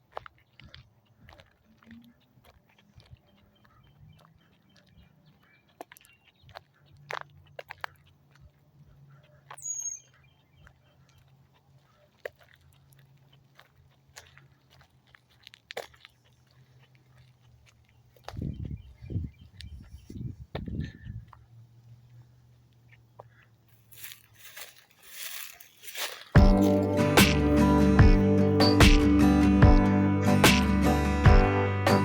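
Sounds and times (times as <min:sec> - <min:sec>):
high falling chirp: 0:09.6 - 0:10.1
animal chewing: 0:22.9 - 0:27.6.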